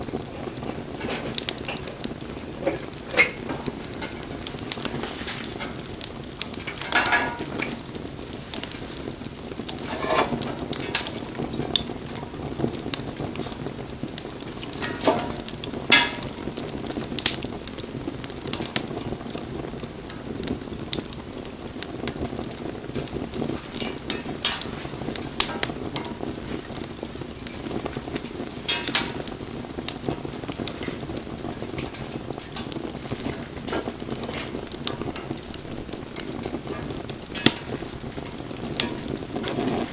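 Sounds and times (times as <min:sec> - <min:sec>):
campfire crackling and popping: 0:00.0 - 0:39.9
fire hiss: 0:00.0 - 0:39.9.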